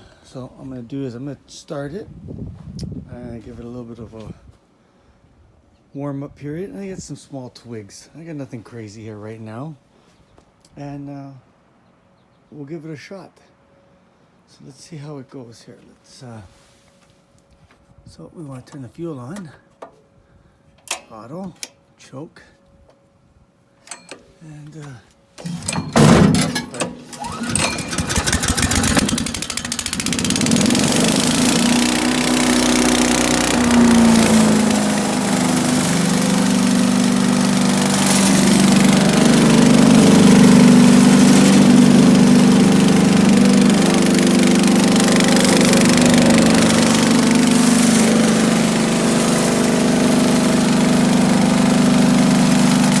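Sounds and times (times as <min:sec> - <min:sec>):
wood chipper engine running: 0:25.4 - 0:53.0.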